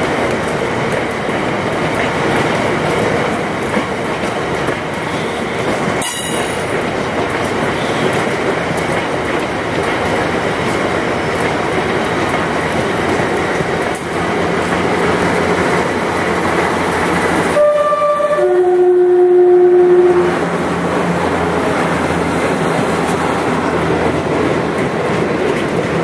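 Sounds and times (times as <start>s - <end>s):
train wheels on rail: 0.0s - 26.0s
two-tone locomotive horn: 17.5s - 20.6s.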